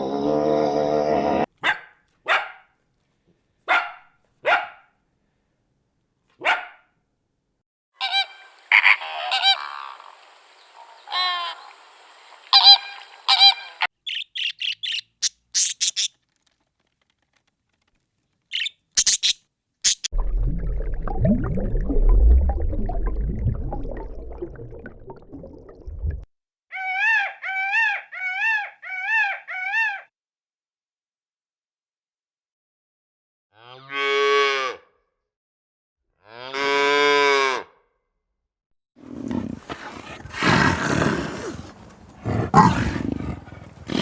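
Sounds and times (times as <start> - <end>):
waterfowl honking: 8.0 - 10.1, 12.5 - 14.8
short high chirps: 18.6 - 20.1.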